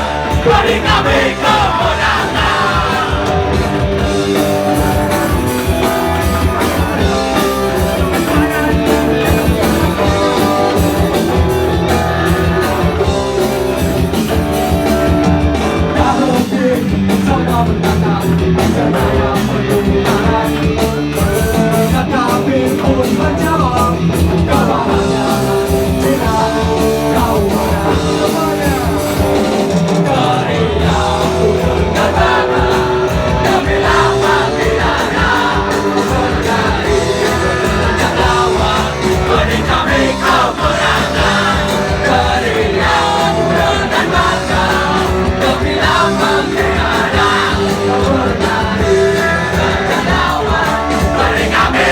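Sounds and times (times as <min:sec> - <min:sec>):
live rock band playing: 0:00.0 - 0:51.9
person singing: 0:15.8 - 0:51.9.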